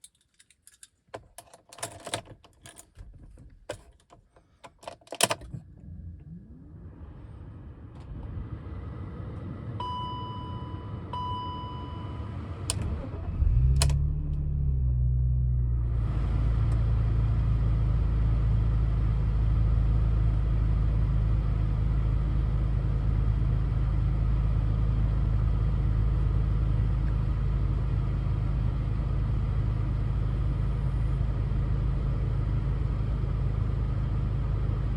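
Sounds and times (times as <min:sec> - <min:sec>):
car engine starting and idling: 0:01.2 - 0:34.9
short beeps: 0:09.8 - 0:12.3.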